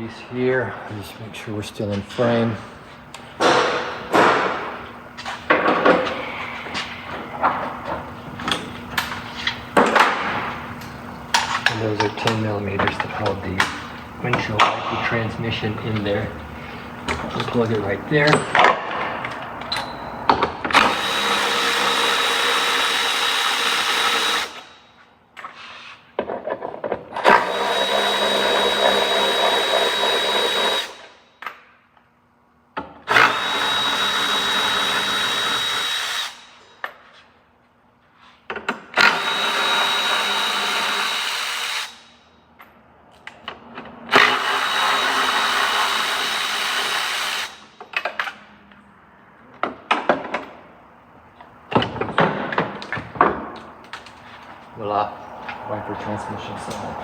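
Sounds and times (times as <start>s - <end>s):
power tool whining: 3.1s - 24.8s, 27.2s - 31.2s, 33.1s - 36.7s, 39.0s - 42.1s, 44.1s - 47.7s.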